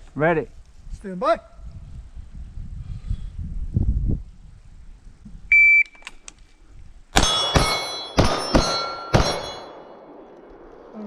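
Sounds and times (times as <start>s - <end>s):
steel target plate ringing: 7.2s - 10.4s
pistol shots: 7.2s - 10.9s.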